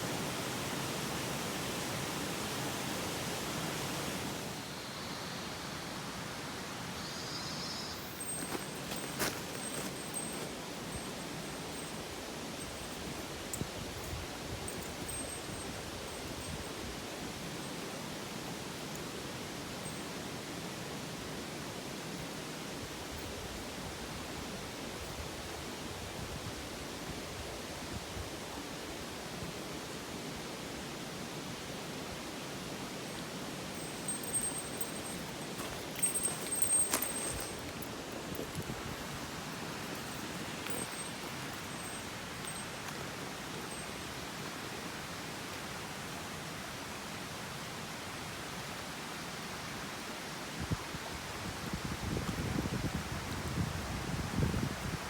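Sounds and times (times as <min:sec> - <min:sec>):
stream water rushing: 0:00.0 - 0:04.7, 0:07.9 - 0:25.0, 0:30.7 - 0:51.3.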